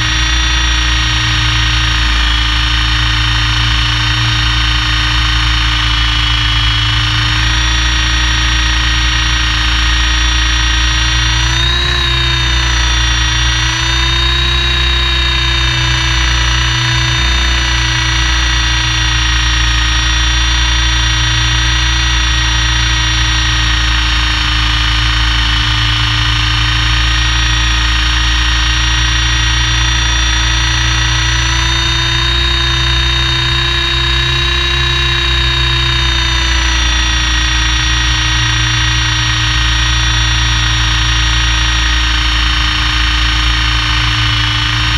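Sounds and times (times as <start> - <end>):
helicopter engine whining inside cabin: 0.0 - 44.9.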